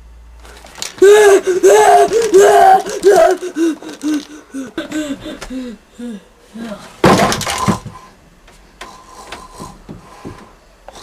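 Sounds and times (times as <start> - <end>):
person crying out: 0.9 - 6.9.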